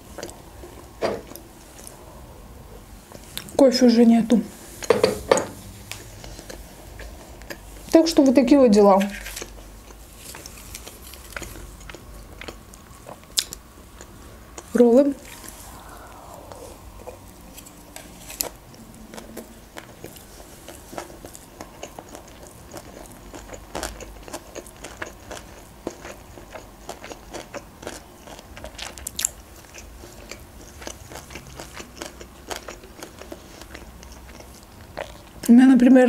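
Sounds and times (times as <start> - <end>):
chewing sushi with mouth clicks: 5.9 - 8.4, 9.1 - 16.2, 17.0 - 35.5.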